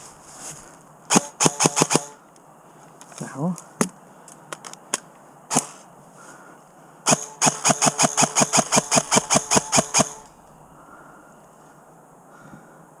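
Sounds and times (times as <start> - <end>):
airsoft gun firing: 1.1 - 2.2, 7.1 - 10.4.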